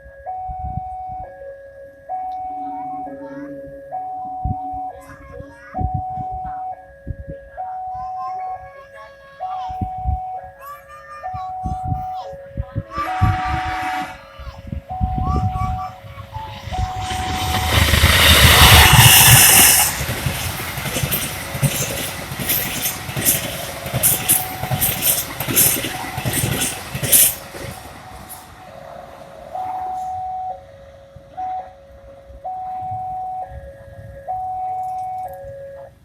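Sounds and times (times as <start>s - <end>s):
two-tone crossing warning alarm: 0.0s - 5.1s, 5.8s - 8.2s, 12.9s - 36.0s
train passing at speed: 12.8s - 34.4s.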